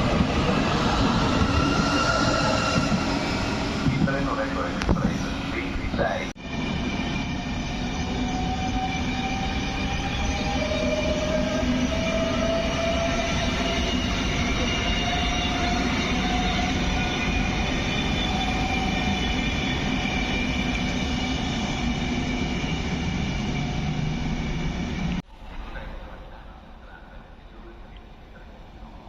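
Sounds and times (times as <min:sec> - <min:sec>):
train rail and wheel noise: 0:00.0 - 0:29.0.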